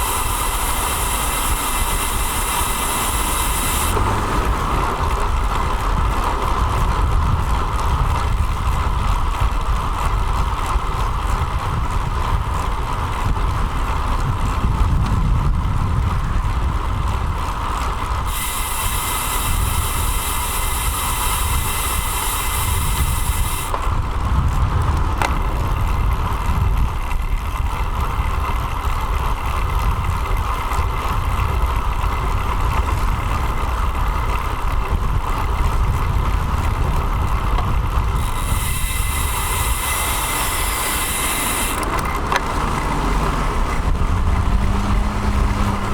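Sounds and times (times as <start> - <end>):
bright hiss: 0.0 - 4.0, 18.3 - 23.7
wind and road noise: 0.0 - 45.9.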